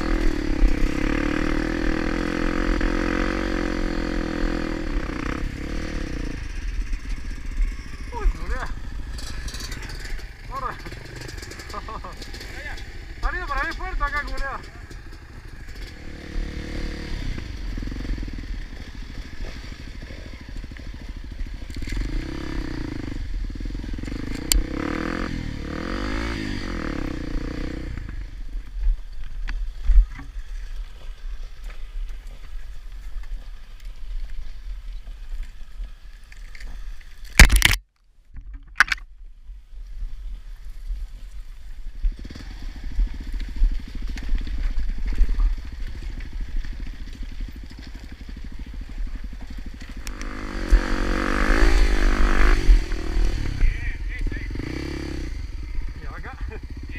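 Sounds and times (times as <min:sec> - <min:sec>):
motorcycle engine revving: 0:00.0 - 0:28.6, 0:42.0 - 0:56.9.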